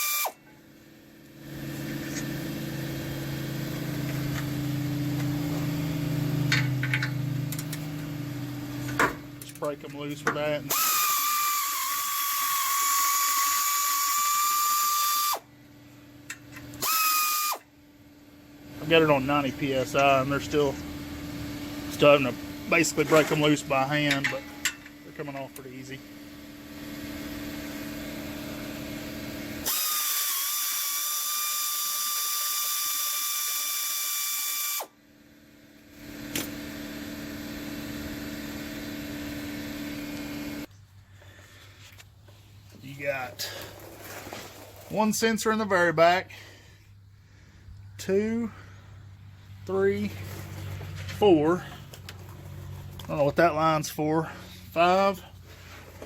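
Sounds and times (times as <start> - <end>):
air ratchet whining: 0.0 - 0.6, 8.8 - 15.5, 16.3 - 17.7, 29.5 - 35.0
steady low hum: 17.6 - 29.7, 34.9 - 56.0.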